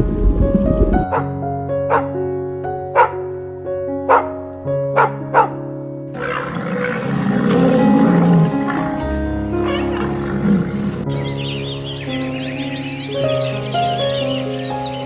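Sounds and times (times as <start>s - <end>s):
calm background music: 0.0s - 15.0s
rough animal sound: 1.1s - 1.3s, 1.9s - 2.1s, 4.1s - 4.3s, 5.0s - 5.6s
dog barking: 1.1s - 2.2s, 2.9s - 3.4s, 4.1s - 5.7s.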